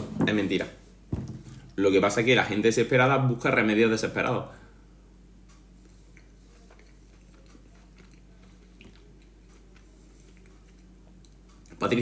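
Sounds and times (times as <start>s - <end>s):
steady low hum: 0.0s - 12.0s
faint close chewing: 5.4s - 11.8s.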